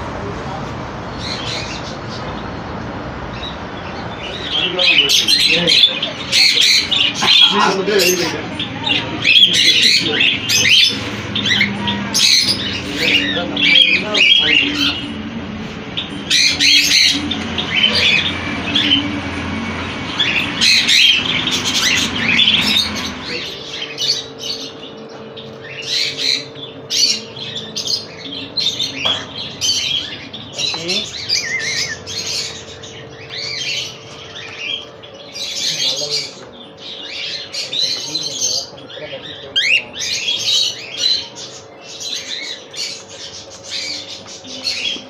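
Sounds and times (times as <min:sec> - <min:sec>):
cockatiels squawking: 0:01.1 - 0:02.6, 0:03.3 - 0:45.0
low hum: 0:08.3 - 0:35.4.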